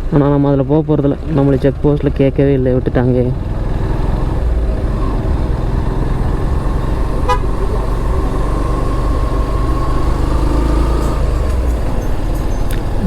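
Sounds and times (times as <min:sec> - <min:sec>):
motorcycle engine rumbling: 0:00.0 - 0:13.0
wind: 0:00.0 - 0:13.0
vehicle horn beeping: 0:07.2 - 0:07.9.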